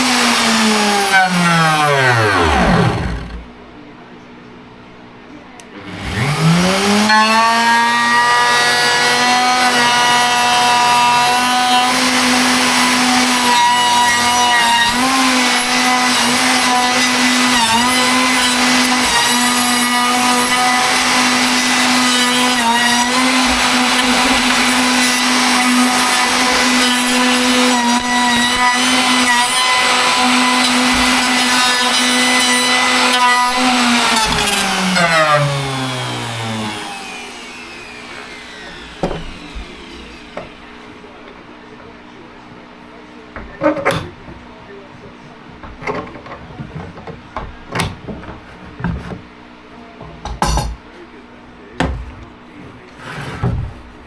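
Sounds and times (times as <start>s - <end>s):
electric wood router whining: 0.0s - 3.6s, 5.6s - 42.0s.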